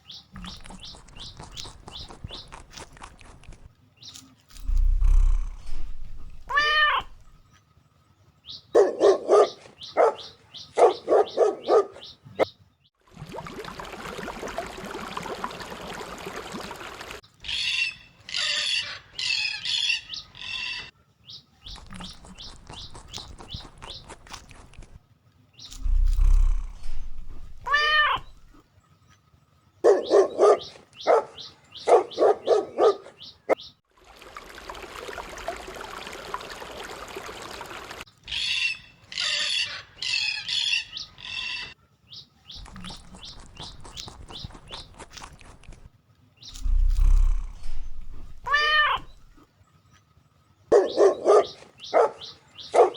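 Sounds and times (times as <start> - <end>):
bird squawking and chattering: 0.2 - 3.7, 4.6 - 7.4, 17.4 - 20.9, 21.6 - 25.0, 25.7 - 28.6, 38.2 - 41.8, 42.6 - 45.9, 46.5 - 49.4
dog barking: 8.7 - 12.2, 29.8 - 33.6, 50.7 - 52.9.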